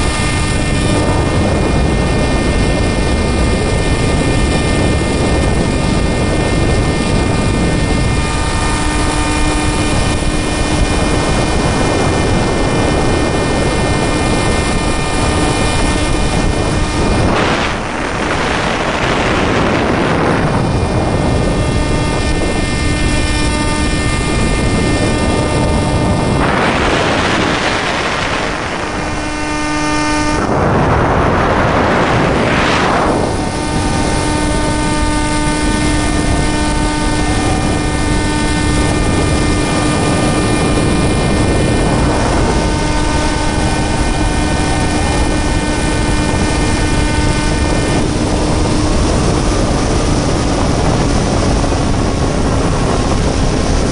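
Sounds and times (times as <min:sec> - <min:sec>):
electric motor whine: 0:00.0 - 0:53.9
wind rush on microphone: 0:00.0 - 0:53.9.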